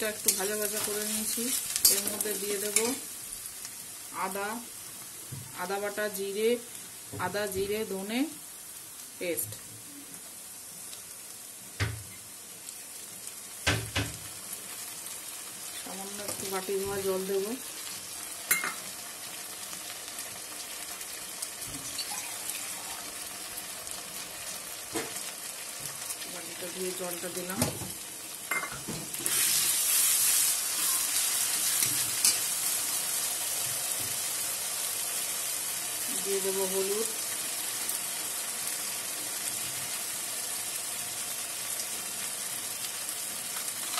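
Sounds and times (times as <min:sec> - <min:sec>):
onion sizzling in hot oil: 0:00.0 - 0:43.9
metal spatula stirring: 0:00.2 - 0:03.0.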